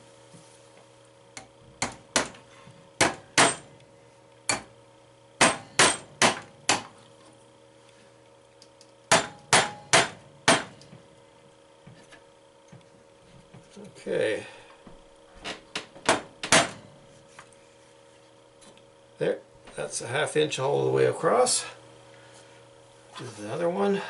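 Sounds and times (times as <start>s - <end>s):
hammer tapping metal into wood: 9.1s - 10.7s.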